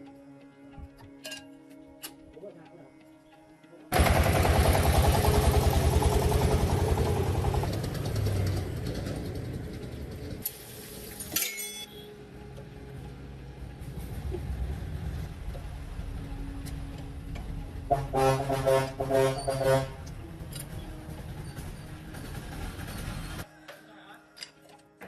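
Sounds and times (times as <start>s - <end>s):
diesel engine knocking: 4.0s - 10.4s, 13.9s - 23.4s.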